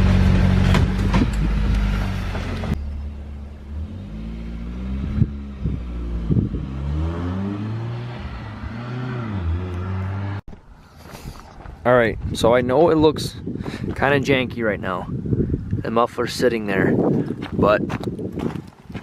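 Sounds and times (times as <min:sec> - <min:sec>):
car engine revving: 0:00.0 - 0:10.4.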